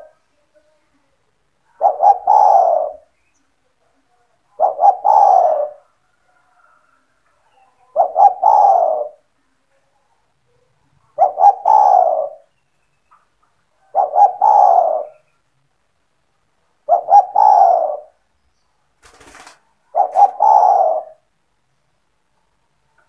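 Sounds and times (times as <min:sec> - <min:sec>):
dove cooing: 0:00.0 - 0:00.2, 0:01.7 - 0:03.1, 0:04.6 - 0:06.7, 0:07.6 - 0:09.3, 0:11.1 - 0:12.5, 0:13.8 - 0:15.3, 0:16.8 - 0:18.2, 0:19.3 - 0:21.3.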